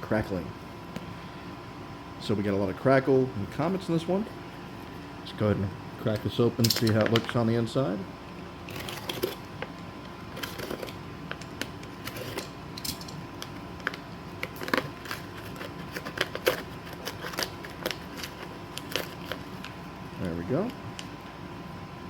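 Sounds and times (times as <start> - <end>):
packaging crinkling and tearing: 10.3 - 12.6, 13.2 - 21.2.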